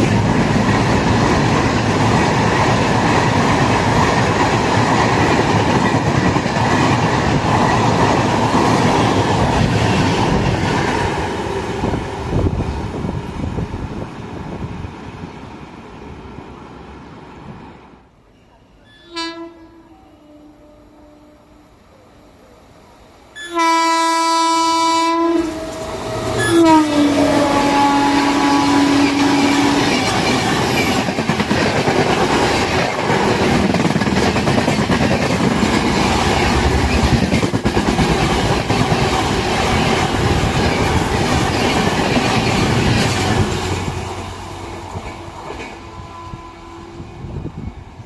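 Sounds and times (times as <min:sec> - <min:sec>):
train wheels clattering over rails: 0:00.0 - 0:13.8, 0:28.6 - 0:45.8
train horn blasts: 0:18.8 - 0:21.8, 0:23.4 - 0:30.0, 0:45.1 - 0:47.4.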